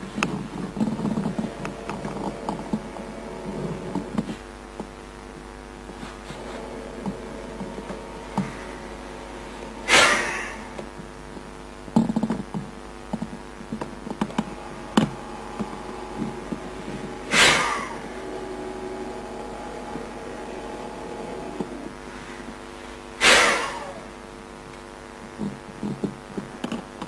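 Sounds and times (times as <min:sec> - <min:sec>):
steady hum: 0:00.0 - 0:27.0
sharp forceful breaths: 0:07.8 - 0:10.8, 0:14.3 - 0:24.1.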